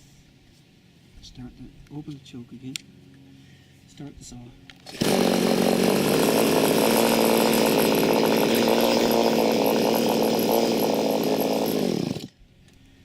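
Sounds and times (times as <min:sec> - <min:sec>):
chainsaw running: 0:04.8 - 0:12.4.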